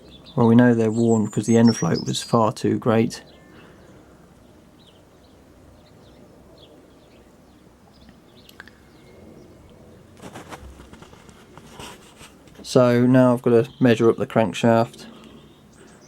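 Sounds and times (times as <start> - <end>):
faint birds chirping: 0.0 - 16.0
rustling: 10.1 - 12.7.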